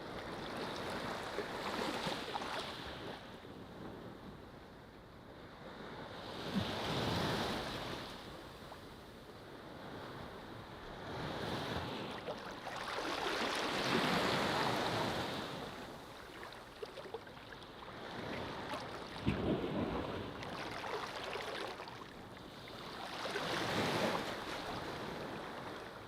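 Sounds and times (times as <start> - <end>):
waves breaking on beach: 0.0 - 3.2, 11.3 - 26.0.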